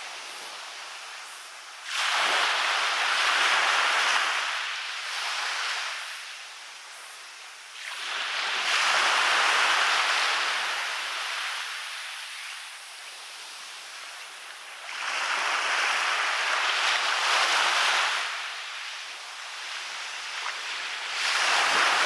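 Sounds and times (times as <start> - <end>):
waves breaking on a beach: 0.0 - 22.0.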